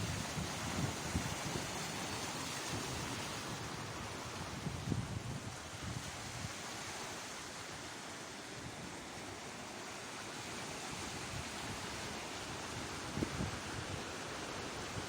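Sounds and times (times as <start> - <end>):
wind buffeting microphone: 0.0 - 6.5
sea waves washing onto shore: 0.0 - 15.0.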